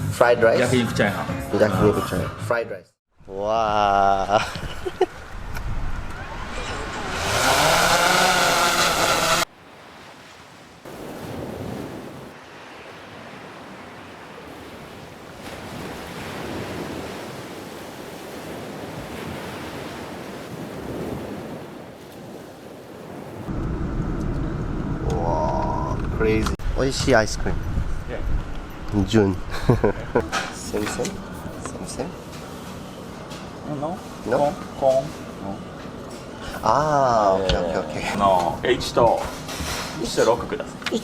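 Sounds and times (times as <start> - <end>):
sea waves washing: 4.1 - 23.6
pitched sliding sound: 6.4 - 9.5.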